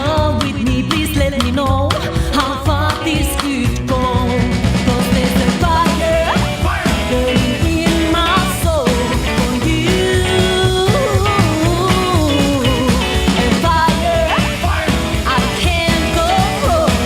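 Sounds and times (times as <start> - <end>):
drums: 0.0 - 17.0
rock band music: 0.0 - 17.0
electric guitar bending notes: 4.4 - 17.0.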